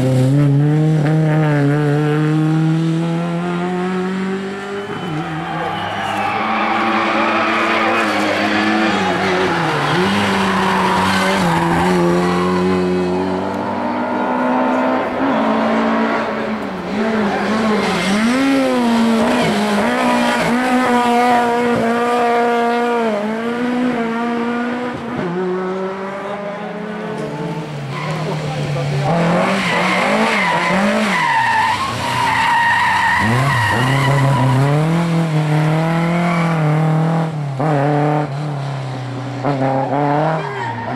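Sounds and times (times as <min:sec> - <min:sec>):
rally car engine revving: 0:00.0 - 0:40.9
tyres squealing: 0:29.4 - 0:34.9.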